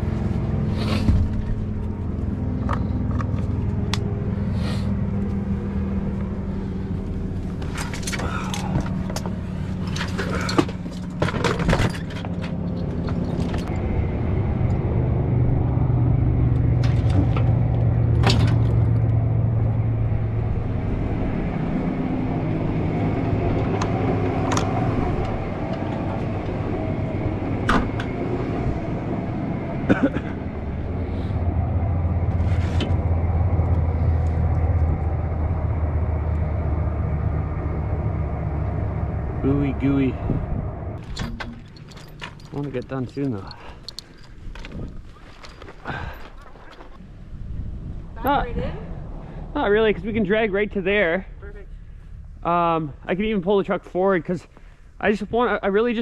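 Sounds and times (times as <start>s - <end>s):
engine running: 0.0s - 56.0s
sharp clanks and knocks: 7.6s - 13.8s, 16.7s - 19.1s, 41.0s - 47.0s.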